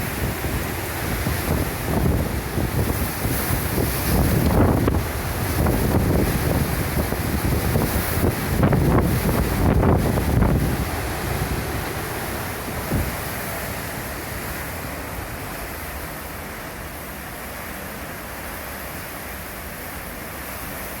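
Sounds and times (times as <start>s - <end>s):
strong wind blowing: 0.0s - 15.8s.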